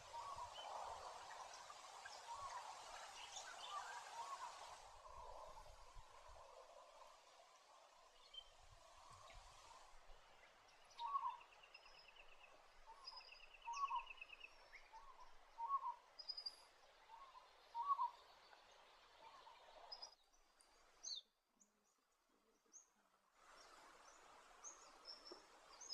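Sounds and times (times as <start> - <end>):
background hiss: 0.0 - 25.9.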